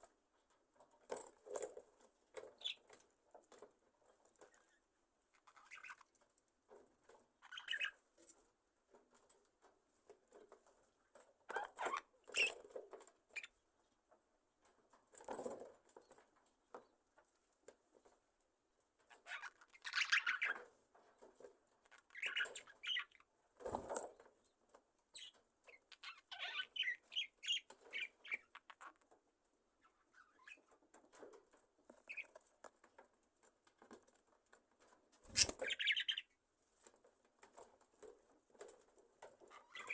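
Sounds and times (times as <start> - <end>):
small scratchy movements: 0.4 - 13.6, 19.0 - 39.9
budgerigars chirping: 35.4 - 36.3.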